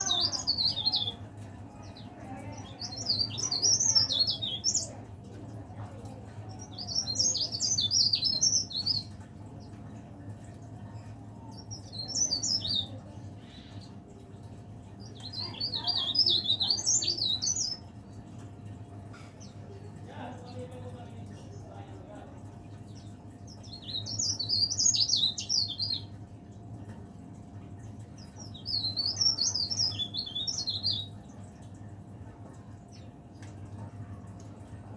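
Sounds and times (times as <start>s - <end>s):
bird twittering: 6.6s - 9.2s, 11.5s - 14.0s, 15.0s - 18.1s, 23.0s - 26.2s, 28.2s - 31.2s.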